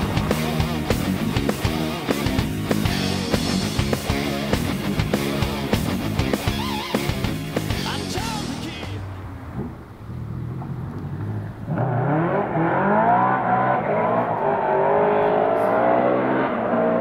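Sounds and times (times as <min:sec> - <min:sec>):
vee eight engine revving: 0:00.0 - 0:17.0.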